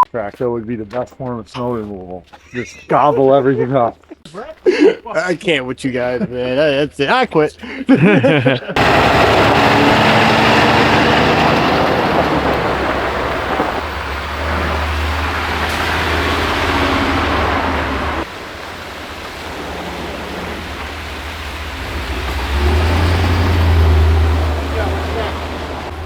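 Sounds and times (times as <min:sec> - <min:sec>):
rushing noise: 0:08.8 - 0:26.0
vehicle engine rumble: 0:08.8 - 0:26.0.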